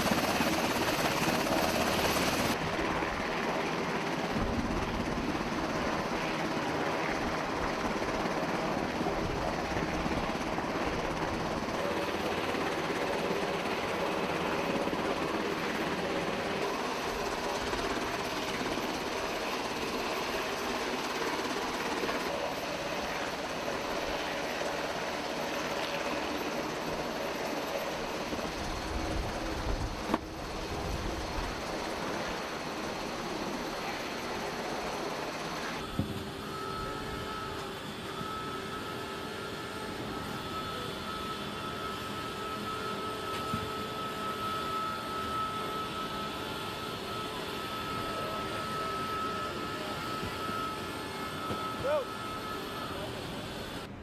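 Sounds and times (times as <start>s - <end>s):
loud steady mechanical noise: 4.2s - 54.0s.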